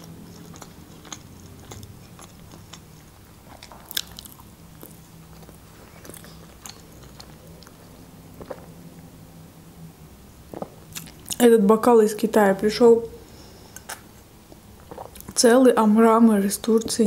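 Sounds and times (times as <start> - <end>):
person chewing food: 0.0 - 9.1, 10.5 - 11.4, 13.7 - 15.4.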